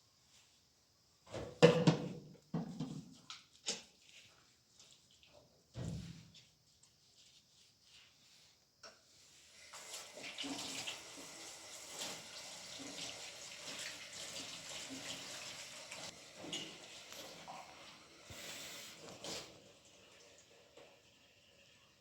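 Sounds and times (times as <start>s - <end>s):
running splashing water: 9.6s - 20.7s.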